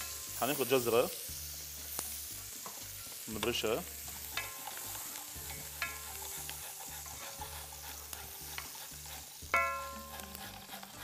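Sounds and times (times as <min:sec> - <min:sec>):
food sizzling in oil: 0:00.0 - 0:11.0
utensil clinking against pan: 0:04.3 - 0:04.8, 0:05.5 - 0:07.6, 0:09.5 - 0:11.0.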